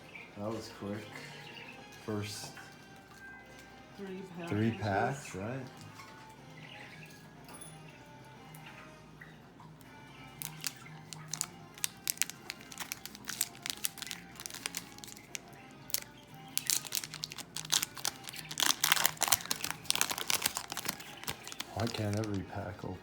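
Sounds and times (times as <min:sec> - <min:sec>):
card pack wrapper crinkling and tearing: 0:10.4 - 0:22.5.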